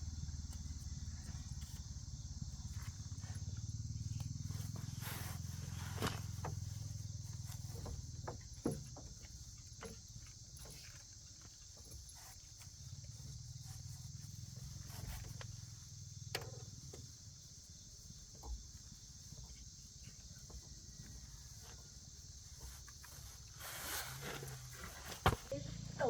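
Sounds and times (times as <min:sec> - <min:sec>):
crickets trilling: 0:00.0 - 0:26.0
small clicks and knocks: 0:15.1 - 0:17.1.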